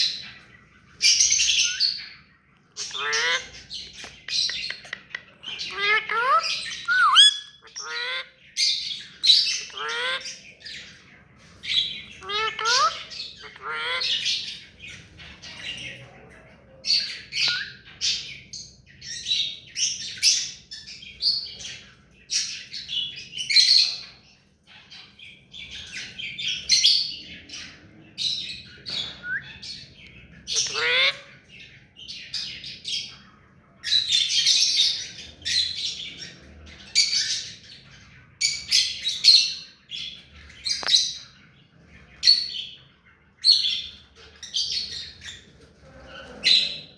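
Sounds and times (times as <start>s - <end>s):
parakeet squawking: 2.8s - 8.7s, 9.3s - 10.4s, 12.0s - 14.6s, 30.4s - 31.6s.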